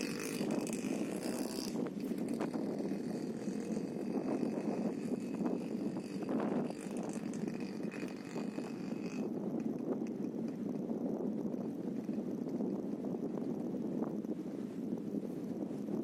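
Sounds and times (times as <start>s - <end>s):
two-stroke motorcycle engine: 0.0s - 10.6s.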